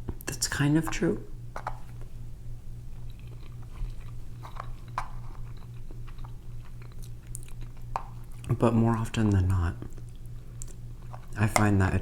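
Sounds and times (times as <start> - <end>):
person chewing food: 2.8 - 8.5, 9.2 - 11.7.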